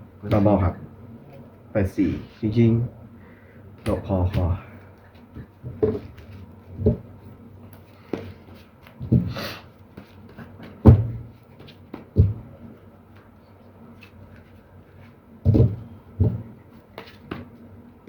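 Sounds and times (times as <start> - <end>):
dull thumps on a tabletop: 5.6 - 6.2, 6.8 - 7.1, 9.0 - 9.4, 10.6 - 12.5, 15.4 - 17.5.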